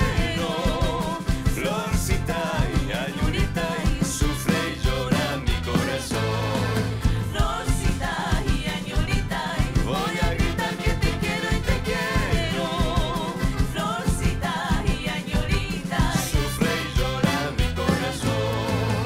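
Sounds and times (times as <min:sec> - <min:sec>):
person singing: 0:00.0 - 0:19.0
folk band playing: 0:02.7 - 0:07.6, 0:09.0 - 0:15.0, 0:15.8 - 0:19.0.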